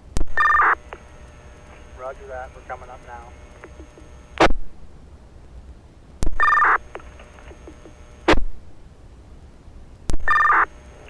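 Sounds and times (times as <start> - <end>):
low radio hiss: 0.0 - 11.0
two-tone data burst: 0.2 - 1.1, 6.2 - 8.4, 10.1 - 11.0
radio squelch burst: 0.2 - 4.6, 6.2 - 8.5, 10.1 - 11.0
radio key-up click: 2.8 - 4.6, 6.2 - 8.4.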